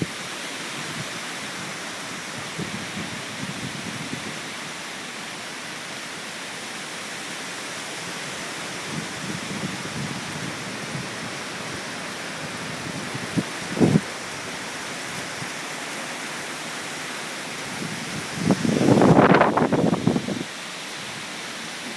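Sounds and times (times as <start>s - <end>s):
wind gusts rumbling on microphone: 0.0s - 4.6s, 8.0s - 15.6s, 17.6s - 21.9s
strong wind rushing: 8.9s - 14.1s, 17.7s - 20.5s.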